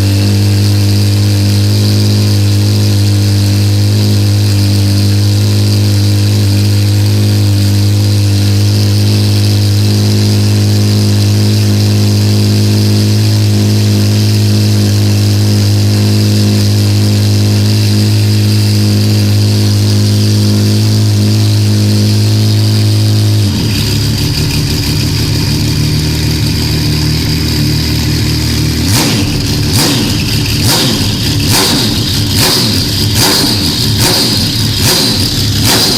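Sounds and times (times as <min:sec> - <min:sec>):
race car engine running: 0:00.0 - 0:35.9
rapid sharp cracks: 0:28.8 - 0:35.9.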